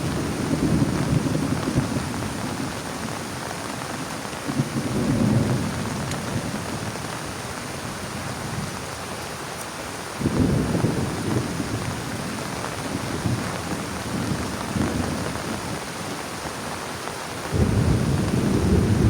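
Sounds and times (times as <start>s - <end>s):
low thunder rumbles: 0.0s - 3.2s, 4.4s - 7.0s, 10.2s - 15.7s, 17.5s - 19.0s
heavy rain on plastic tarp: 0.0s - 19.0s.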